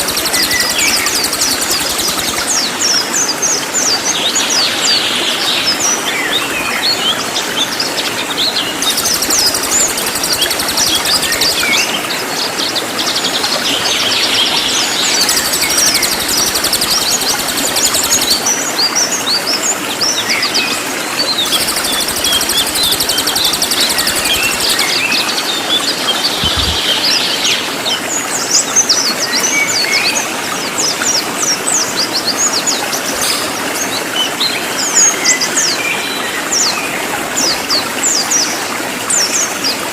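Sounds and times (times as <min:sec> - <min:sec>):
songbird singing: 0:00.0 - 0:02.7, 0:08.5 - 0:12.1, 0:13.4 - 0:18.9, 0:21.3 - 0:25.4, 0:26.1 - 0:27.6
flowing water: 0:00.0 - 0:39.9.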